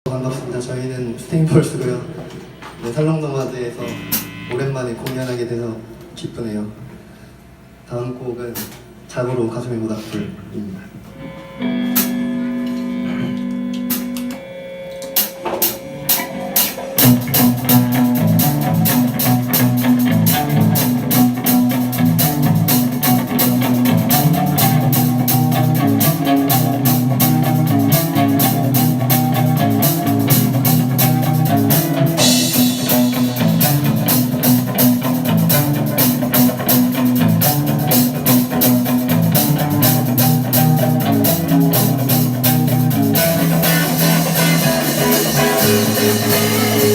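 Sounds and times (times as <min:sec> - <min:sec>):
rock band playing: 0:03.7 - 0:05.1, 0:11.1 - 0:46.9
cymbals: 0:03.8 - 0:04.8, 0:11.2 - 0:38.8, 0:39.4 - 0:46.9
guitar chord ringing: 0:03.8 - 0:05.1, 0:11.1 - 0:46.9
drum hits: 0:03.8 - 0:05.2, 0:15.2 - 0:46.9.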